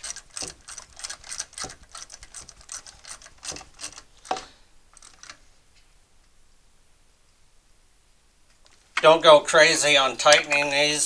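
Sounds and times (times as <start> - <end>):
ratchet wrench clicking: 0.0 - 4.1.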